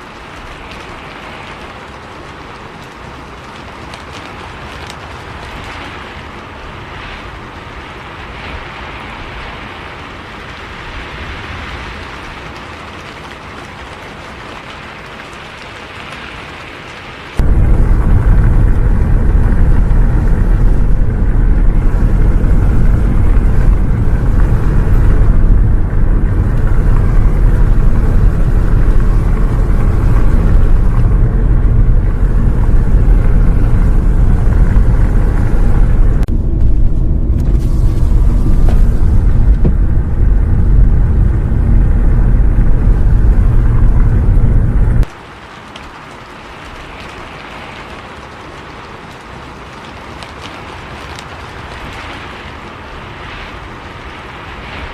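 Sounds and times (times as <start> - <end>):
rain hiss: 0.0 - 54.9
bus engine and road drone: 15.5 - 45.2.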